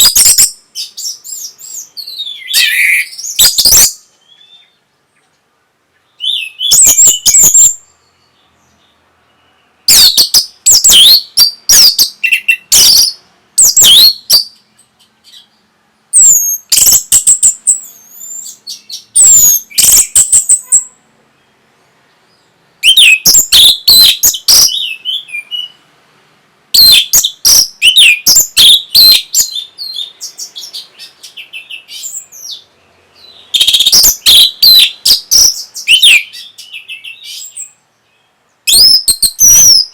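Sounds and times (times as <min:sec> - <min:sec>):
thrush singing whistled phrases: 0:00.0 - 0:04.8, 0:06.1 - 0:08.2, 0:09.3 - 0:14.8, 0:16.1 - 0:21.0, 0:22.8 - 0:25.8, 0:26.7 - 0:37.8, 0:38.6 - 0:39.9.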